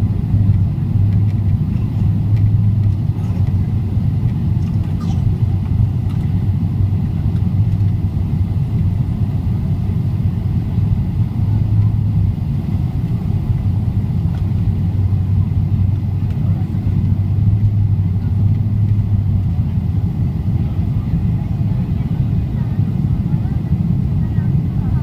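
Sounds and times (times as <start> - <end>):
airplane cabin engine rumble: 0.0 - 25.0.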